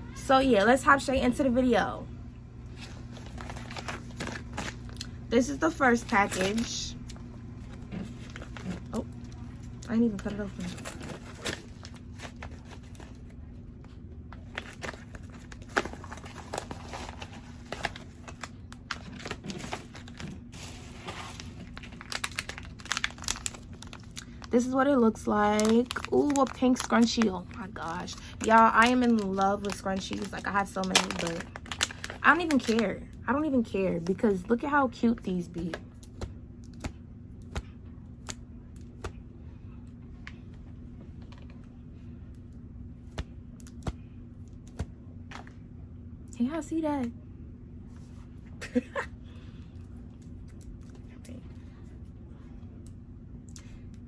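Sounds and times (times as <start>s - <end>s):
steady low hum: 0.0s - 54.0s
packaging crinkling: 2.7s - 5.2s, 6.0s - 32.9s.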